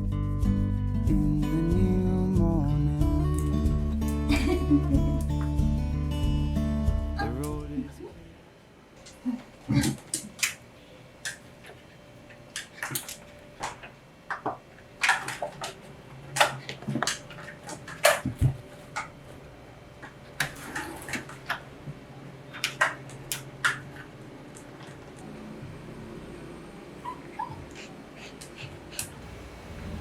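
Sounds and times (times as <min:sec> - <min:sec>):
kitchen utensils and dishes clinking: 0:20.4 - 0:21.6.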